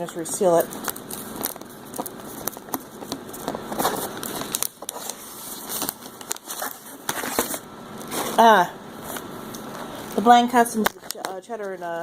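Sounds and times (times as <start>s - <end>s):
plastic snack bag crinkling: 0.5s - 8.4s.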